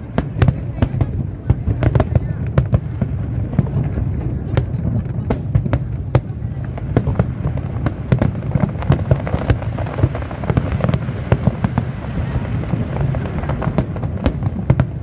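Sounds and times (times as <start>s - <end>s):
low rumble: 0.0s - 8.9s
fireworks bangs and crackles: 0.0s - 15.0s.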